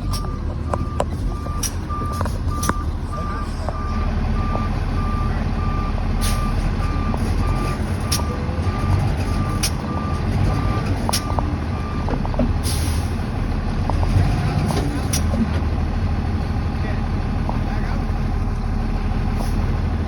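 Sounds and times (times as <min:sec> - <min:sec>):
truck reversing alarm beeping: 0:00.0 - 0:13.1
diesel engine running: 0:00.0 - 0:20.0.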